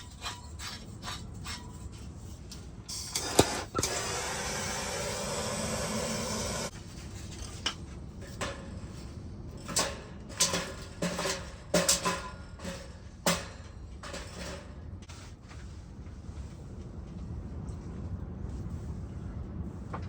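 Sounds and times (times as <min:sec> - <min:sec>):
wood clanking in metal stove: 0:07.4 - 0:15.0.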